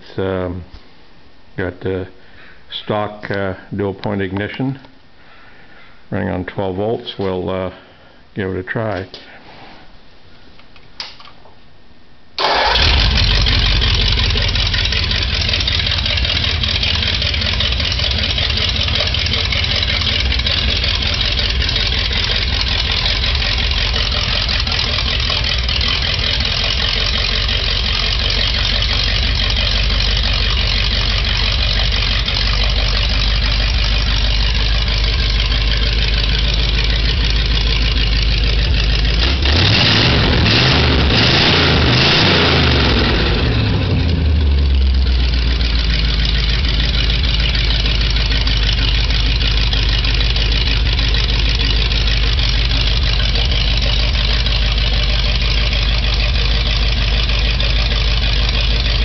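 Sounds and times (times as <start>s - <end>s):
car engine starting and running: 12.4s - 59.0s.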